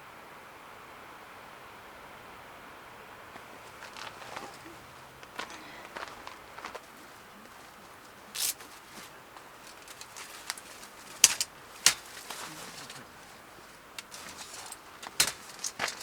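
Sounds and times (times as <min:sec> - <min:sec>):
dove cooing: 0:03.8 - 0:16.0.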